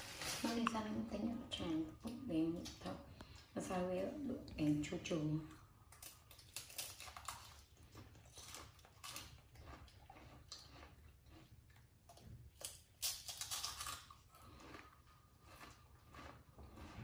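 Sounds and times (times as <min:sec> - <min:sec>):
crunching crispy wafers: 0:05.9 - 0:17.0.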